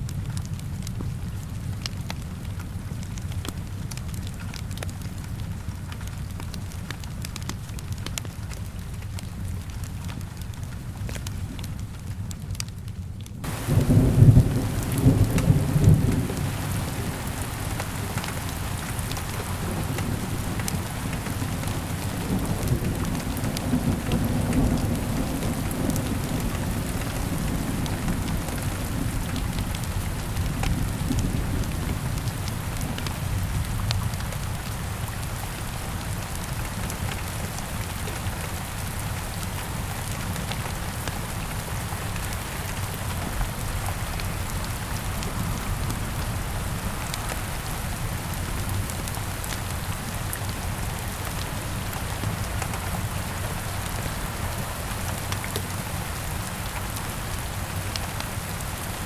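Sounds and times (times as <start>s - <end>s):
steady rain falling: 0.0s - 59.0s
thunder rumbling: 13.4s - 34.7s.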